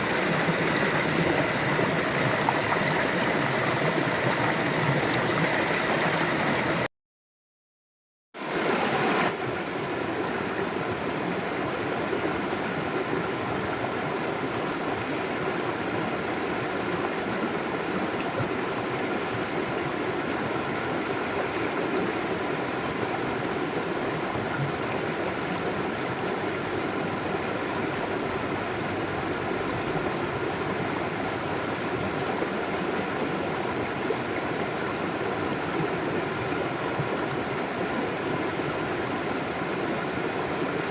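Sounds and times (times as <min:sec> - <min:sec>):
river water flowing: 0:00.0 - 0:06.9, 0:08.4 - 0:40.9.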